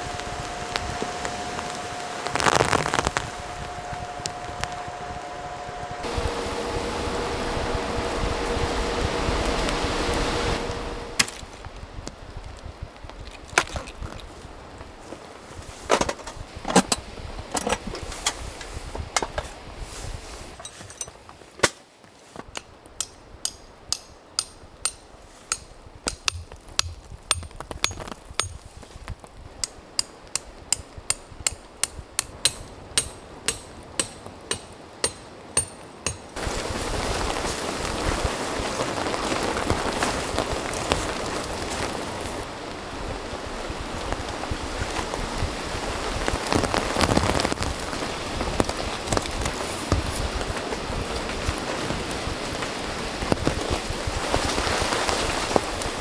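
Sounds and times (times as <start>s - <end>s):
steady rain: 0.0s - 13.2s
sharp metallic strikes ringing: 23.0s - 28.6s, 30.0s - 36.4s
scattered knocks: 31.1s - 36.4s.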